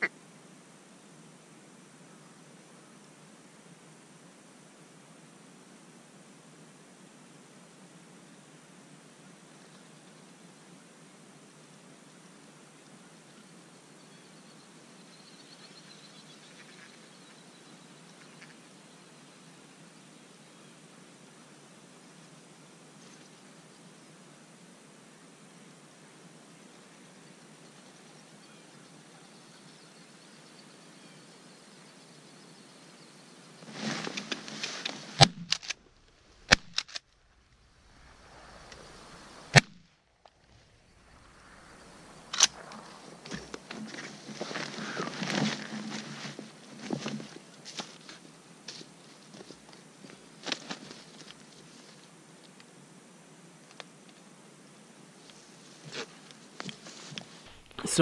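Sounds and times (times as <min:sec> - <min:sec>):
faint field hiss: 0:00.0 - 0:58.0
rustling movement: 0:33.6 - 0:48.2
shotgun shots: 0:37.9 - 0:39.8.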